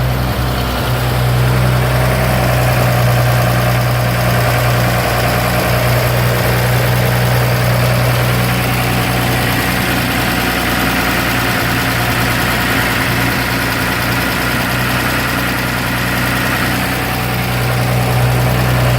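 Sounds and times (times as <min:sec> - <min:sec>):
truck engine idling: 0:00.0 - 0:18.9.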